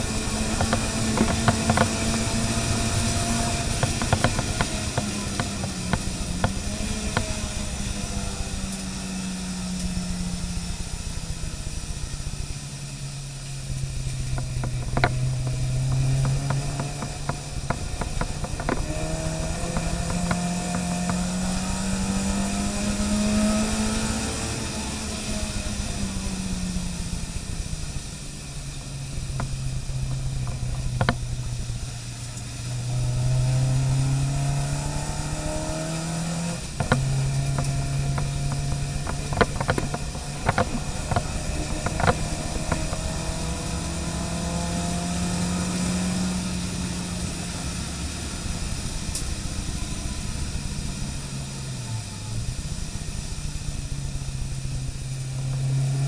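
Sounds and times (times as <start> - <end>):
car engine running under load: 0.0 - 56.0
clicks and knocks: 0.4 - 7.4, 14.0 - 21.3, 29.3 - 31.5, 36.6 - 43.3.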